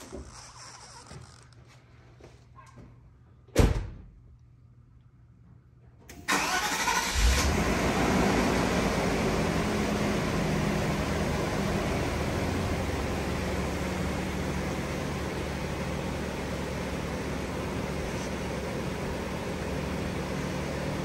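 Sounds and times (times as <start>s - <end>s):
car engine cranking and idling: 6.1s - 21.0s.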